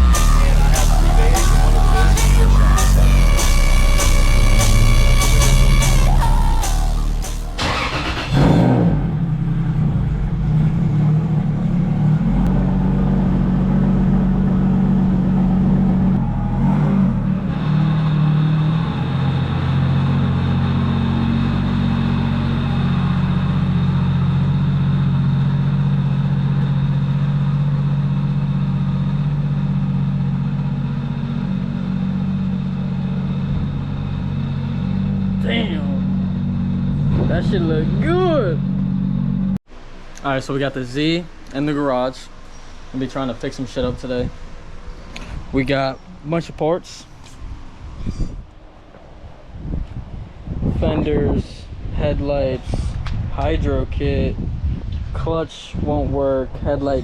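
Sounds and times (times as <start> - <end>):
car engine running: 0.0 - 40.0.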